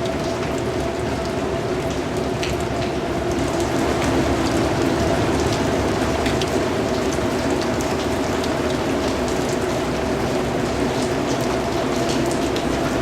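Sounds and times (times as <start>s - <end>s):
rain falling: 0.0s - 13.0s
raindrops pattering: 0.0s - 13.0s.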